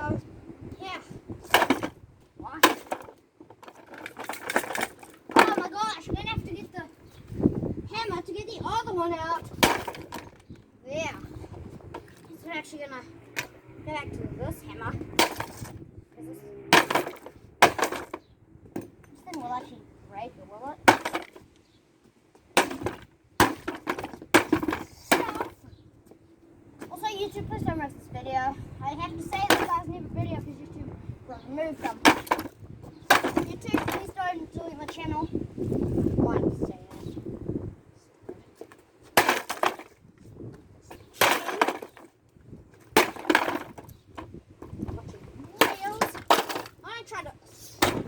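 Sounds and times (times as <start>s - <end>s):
hammer smashing plastic toy: 2.6s - 5.7s, 9.5s - 10.3s, 15.2s - 15.7s, 16.7s - 18.2s, 20.9s - 21.4s, 22.6s - 25.6s, 32.0s - 32.5s, 33.1s - 34.1s, 39.2s - 39.9s, 41.2s - 42.1s, 42.9s - 43.8s, 45.6s - 46.8s
plastic rattling: 2.6s - 5.8s, 42.8s - 44.9s.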